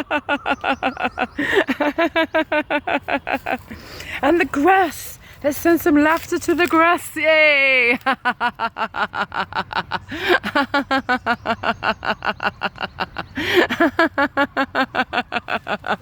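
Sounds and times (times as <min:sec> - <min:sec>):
person laughing hard: 0:00.0 - 0:03.8, 0:08.0 - 0:16.0.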